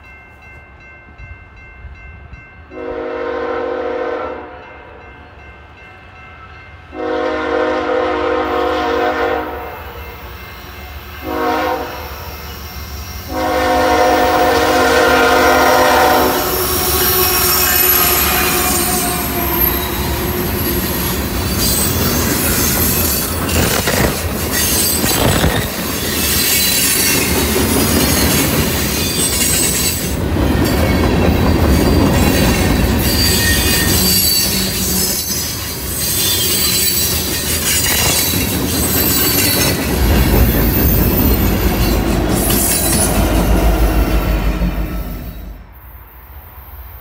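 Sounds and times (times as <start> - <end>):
steel wheels squealing on rail: 9.8 - 46.4
wheels clacking over rail joints: 16.7 - 43.8
diesel locomotive rumble: 37.5 - 45.7.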